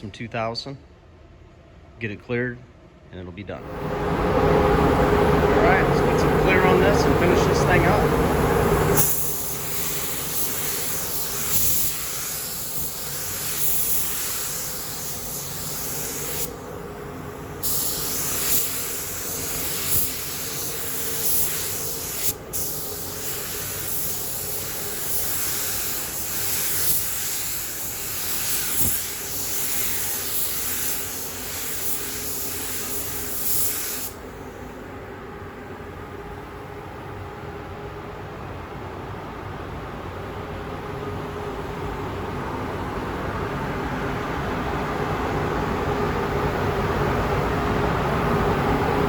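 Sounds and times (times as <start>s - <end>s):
spray gun hissing: 5.6s - 34.7s.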